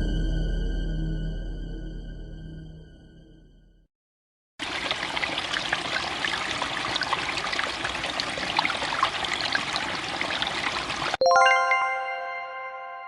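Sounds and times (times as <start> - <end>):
scary music: 0.0 - 3.6
running trickling water: 4.6 - 11.2.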